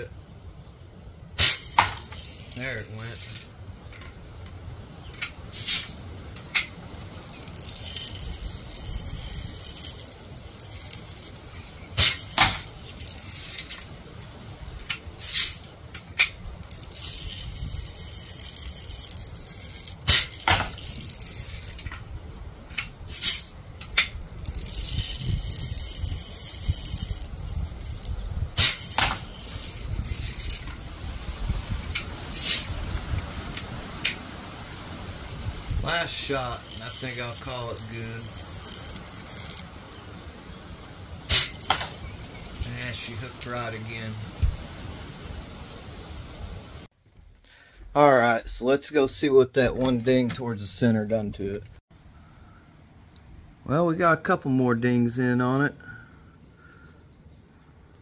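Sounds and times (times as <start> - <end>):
handling rattles: 1.4 - 30.9, 31.6 - 40.2, 41.2 - 44.6
wind rumble on microphone: 16.3 - 18.9, 20.6 - 46.9.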